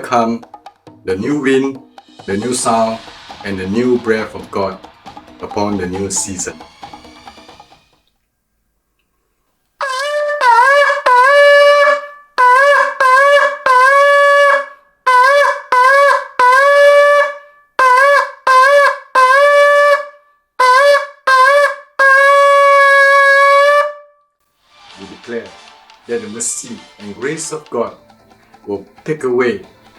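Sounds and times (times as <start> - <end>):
shofar blasts: 9.8 - 24.1.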